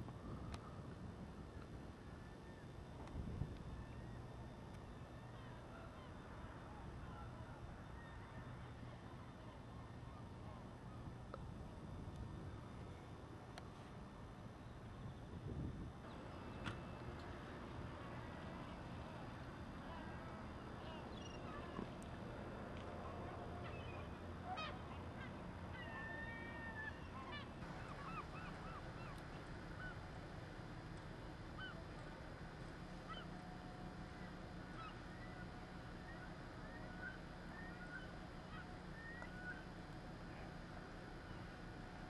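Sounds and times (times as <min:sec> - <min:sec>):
low machinery hum: 0:00.0 - 0:42.0
flock of birds calling: 0:23.4 - 0:30.1, 0:31.5 - 0:31.9, 0:33.0 - 0:33.4, 0:34.1 - 0:39.8.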